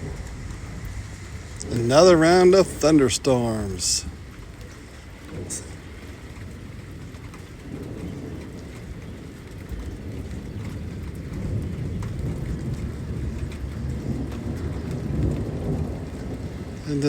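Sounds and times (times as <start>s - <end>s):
rain falling: 0.0s - 17.0s
rolling thunder: 0.0s - 17.0s.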